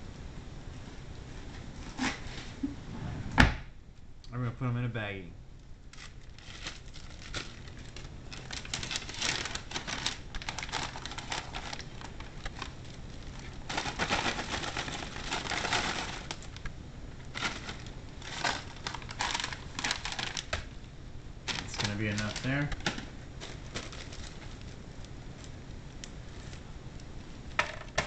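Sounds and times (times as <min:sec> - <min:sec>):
plastic bag crinkling: 0:05.9 - 0:20.8, 0:21.4 - 0:26.8.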